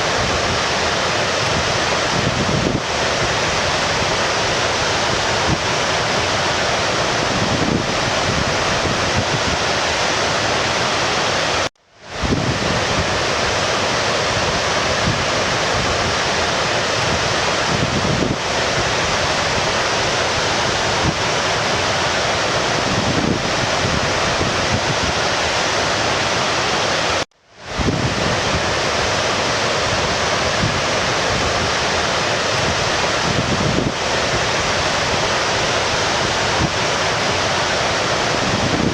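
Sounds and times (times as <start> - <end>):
creek water rushing: 0.0 - 38.9.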